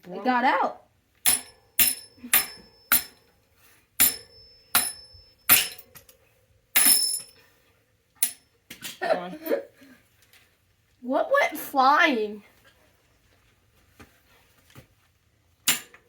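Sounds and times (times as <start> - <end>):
hammer striking metal: 1.2 - 3.2, 4.0 - 5.9, 6.8 - 7.3.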